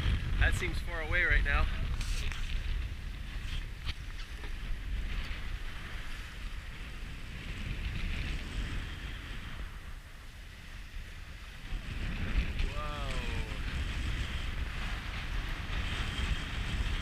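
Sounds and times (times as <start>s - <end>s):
water rushing along hull: 0.0s - 17.0s
wind buffeting microphone: 0.0s - 17.0s
breaking seas: 11.6s - 17.0s.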